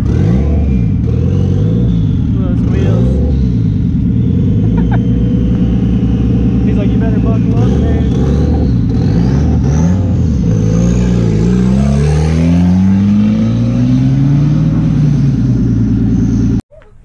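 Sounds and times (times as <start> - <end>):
car engine idling: 0.0 - 10.7, 14.4 - 16.6
car accelerating away: 0.0 - 16.6.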